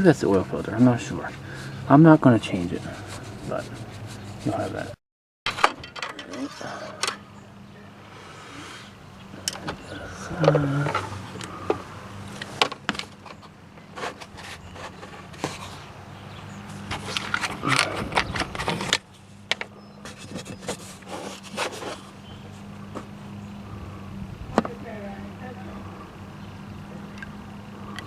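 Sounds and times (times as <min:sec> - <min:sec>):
steady low hum: 0:06.1 - 0:28.0.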